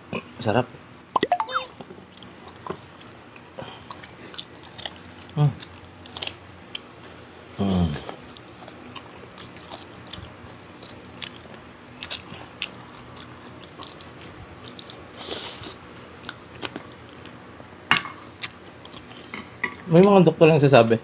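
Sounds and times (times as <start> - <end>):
chewing and mouth smacks: 1.7 - 7.3, 8.0 - 17.4, 18.3 - 19.7.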